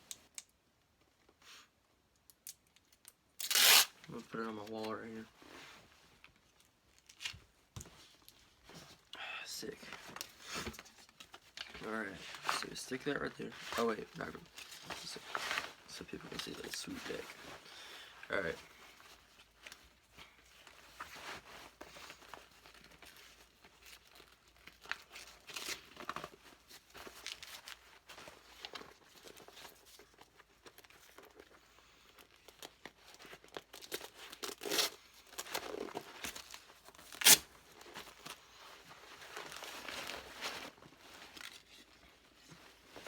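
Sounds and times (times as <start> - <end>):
packaging rustling and tearing: 2.8 - 4.9, 20.6 - 43.0.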